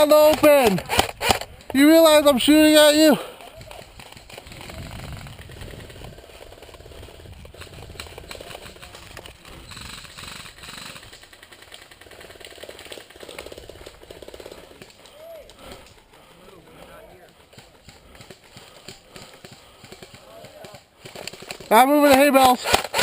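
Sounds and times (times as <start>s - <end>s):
airsoft gun firing full auto: 0.1s - 1.5s, 19.8s - 23.0s.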